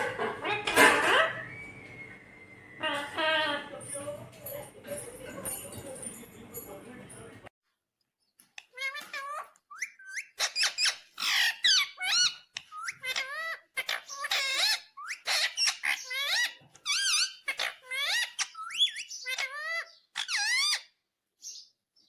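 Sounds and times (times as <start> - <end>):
parrot chattering: 8.6 - 21.0.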